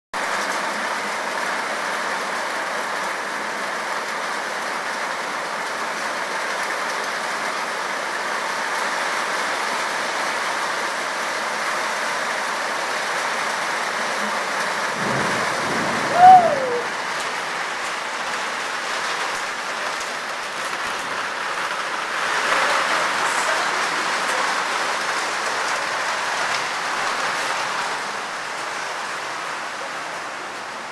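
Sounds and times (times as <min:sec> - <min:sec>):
steady rain falling: 0:00.2 - 0:30.9
loud tone sliding in pitch: 0:15.0 - 0:16.9.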